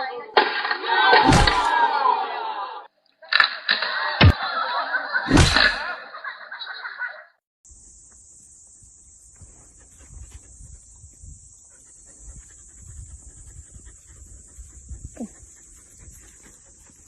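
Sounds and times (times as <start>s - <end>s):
faint animal sounds: 8.7s - 17.0s.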